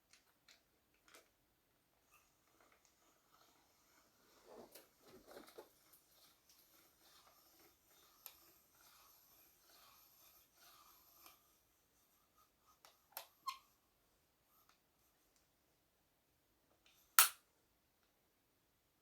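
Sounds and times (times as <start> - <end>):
crossbow mechanism scraping: 2.2 - 11.6.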